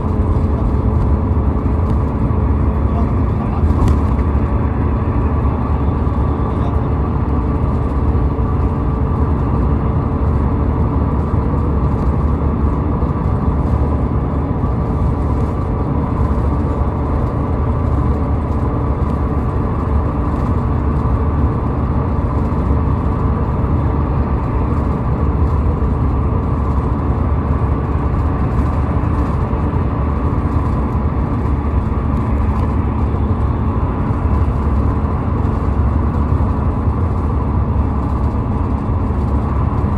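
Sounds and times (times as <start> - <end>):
highway traffic rumble: 0.0 - 39.9.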